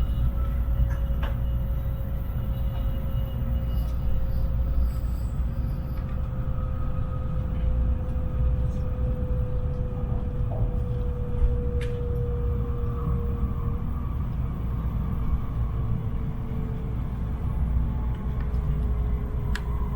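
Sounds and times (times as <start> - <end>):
train cabin rumble: 0.0 - 19.9.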